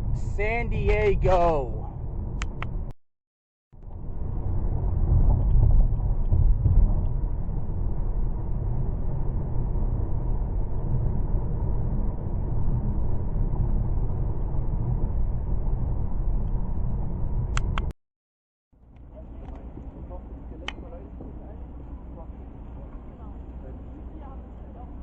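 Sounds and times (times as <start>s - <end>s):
car road and engine rumble: 0.0s - 2.9s, 3.8s - 17.9s, 18.8s - 25.0s.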